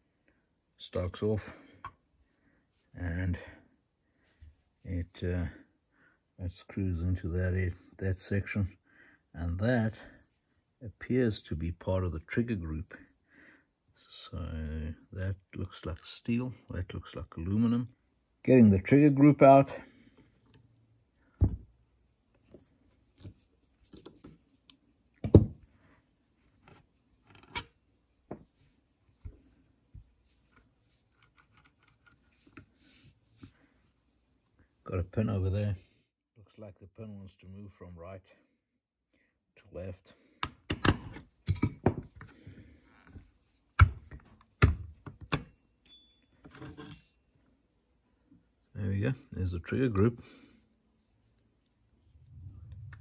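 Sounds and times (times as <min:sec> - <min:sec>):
metal parts clicking and knocking: 0:40.7 - 0:41.8
faint metallic ring: 0:45.8 - 0:47.2.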